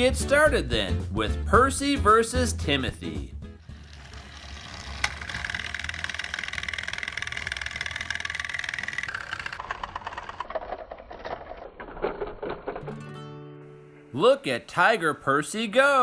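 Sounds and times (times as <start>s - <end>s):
toy train rattling on plastic track: 3.6s - 12.9s.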